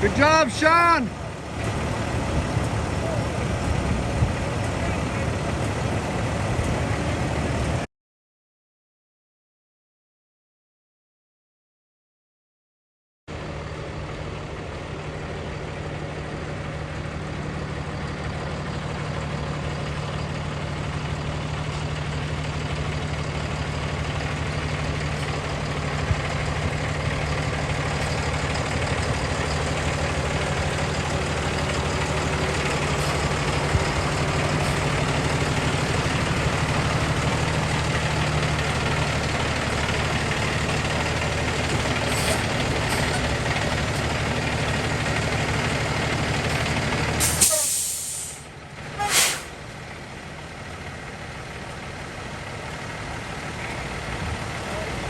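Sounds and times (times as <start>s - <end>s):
diesel truck engine running: 0.0s - 7.9s, 13.3s - 55.0s
short high hisses: 47.2s - 49.6s.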